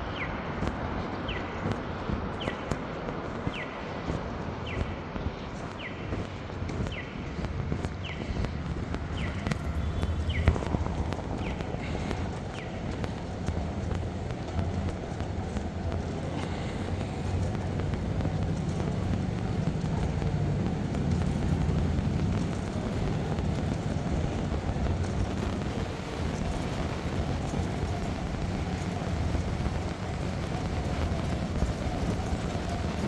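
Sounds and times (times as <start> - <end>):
traffic on wet pavement: 0.0 - 33.0
rain hiss: 9.2 - 33.0.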